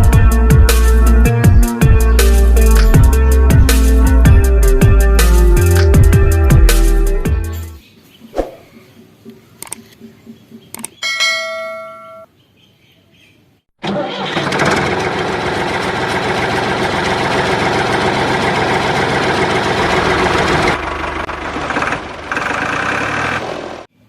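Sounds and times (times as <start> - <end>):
engine running: 13.8 - 23.9.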